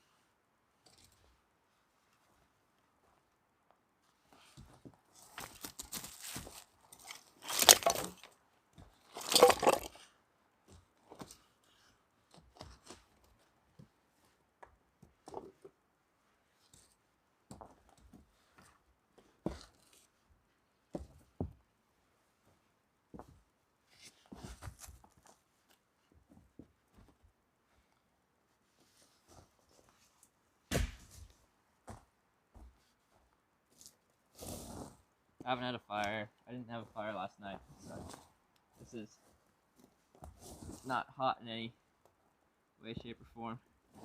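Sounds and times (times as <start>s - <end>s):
light crunches and knocks: 4.6s - 10.0s
rustling: 37.6s - 40.9s.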